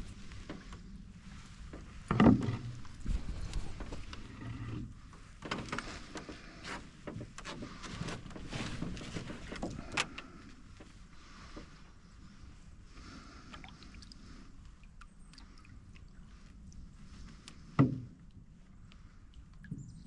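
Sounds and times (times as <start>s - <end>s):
trickling water: 12.9s - 20.0s
paddle knocking against hull: 17.7s - 18.2s.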